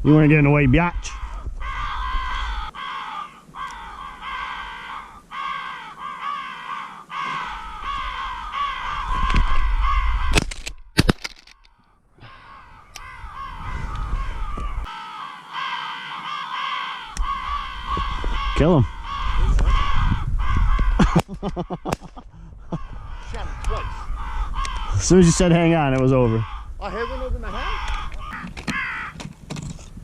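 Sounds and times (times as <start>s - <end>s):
crows cawing: 1.1s - 10.7s, 11.4s - 29.2s.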